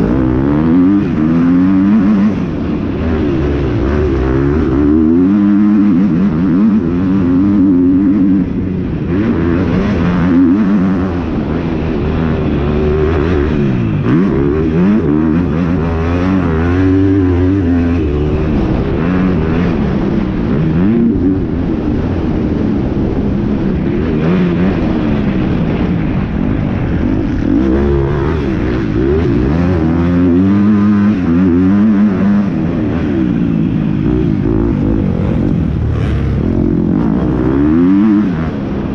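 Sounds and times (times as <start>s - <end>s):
dirt bike engines revving: 0.0s - 38.9s.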